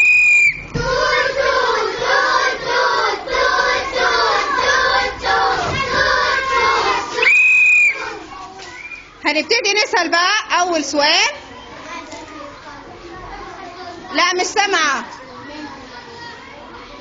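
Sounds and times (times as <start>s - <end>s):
whistle blown: 0.0s - 0.8s, 7.2s - 8.0s
children chanting together: 0.7s - 7.3s.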